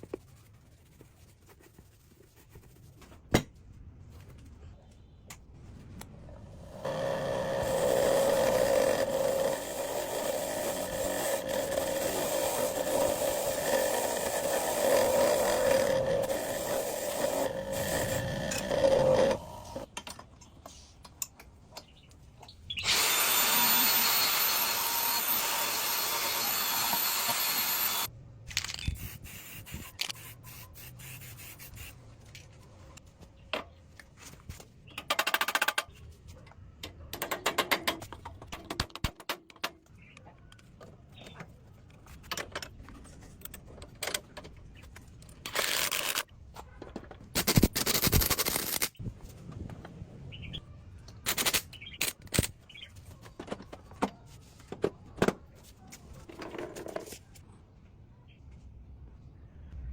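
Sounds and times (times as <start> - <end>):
power tool humming: 22.8 - 28.1.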